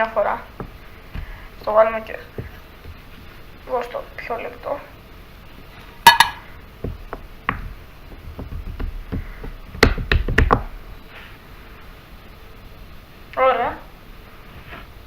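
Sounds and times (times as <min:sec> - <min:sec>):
clicks and knocks on a hard surface: 0:02.4 - 0:03.0, 0:06.0 - 0:10.8.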